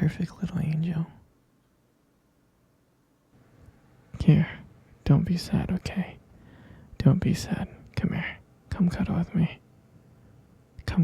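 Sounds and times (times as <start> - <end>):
man speaking softly: 0.0 - 1.2, 4.2 - 6.2, 7.0 - 9.6, 10.8 - 11.0.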